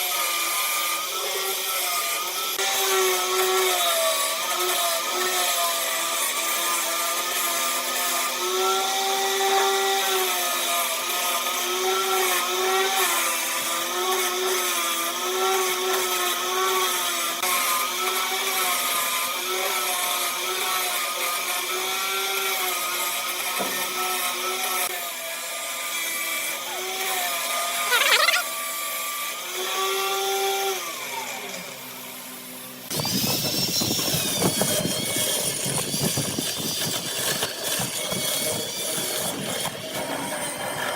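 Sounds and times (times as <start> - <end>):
electric woodworking tool whining: 0.0 - 32.6.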